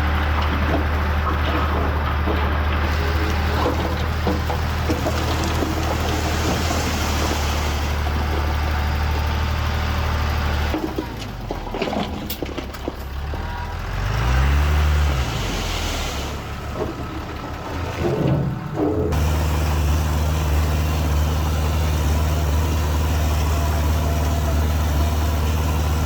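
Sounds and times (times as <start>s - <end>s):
knocks and rattles: 0.0s - 7.0s
heavy diesel engine running: 0.0s - 26.0s.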